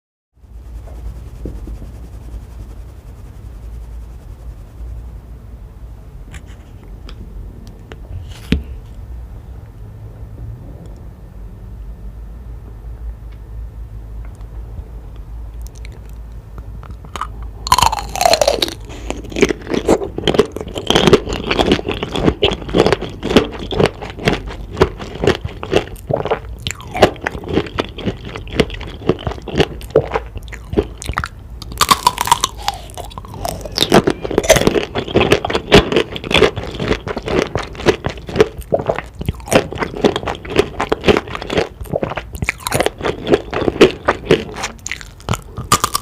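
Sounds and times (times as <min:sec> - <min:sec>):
low steady hum: 0:00.4 - 0:46.0
crunching and chewing: 0:15.6 - 0:46.0.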